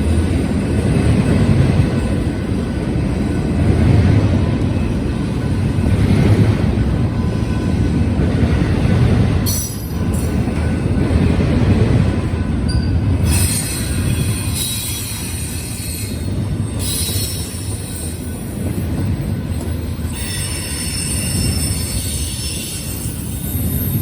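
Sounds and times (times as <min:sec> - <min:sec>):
freight train rumbling past: 0:00.0 - 0:24.0
high-pitched wheel squeal: 0:20.1 - 0:24.0.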